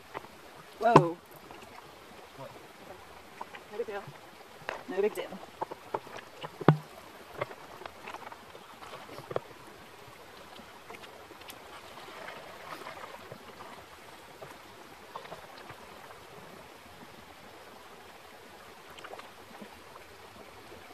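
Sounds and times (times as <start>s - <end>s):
water splashing and running: 0.0s - 20.9s.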